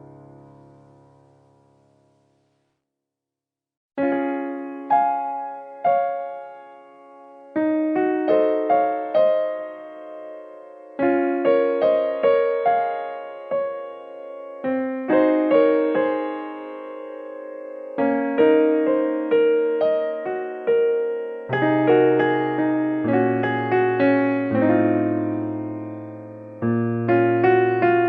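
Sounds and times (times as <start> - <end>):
gentle piano melody: 0.0 - 2.6, 4.0 - 28.0.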